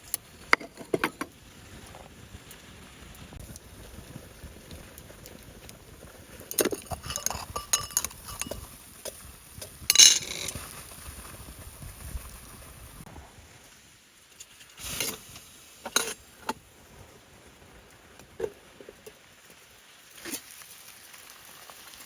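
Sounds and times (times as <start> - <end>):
cookware clinking and knocking: 6.5 - 10.6.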